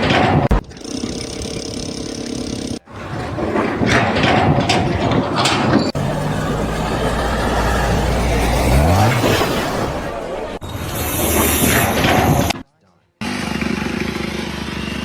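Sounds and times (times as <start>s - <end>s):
low engine drone: 5.9s - 12.6s
machinery with rising sweeps: 5.9s - 12.6s.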